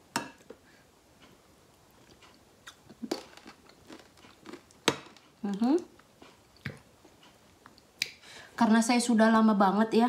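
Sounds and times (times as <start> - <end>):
chewing and mouth smacks: 1.9 - 5.2.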